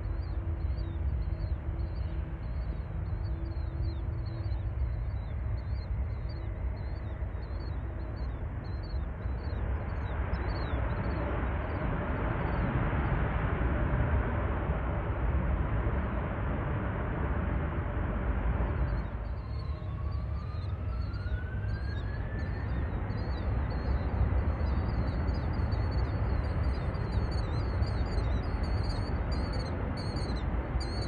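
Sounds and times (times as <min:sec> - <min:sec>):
jet airliner passing: 0:09.6 - 0:31.0.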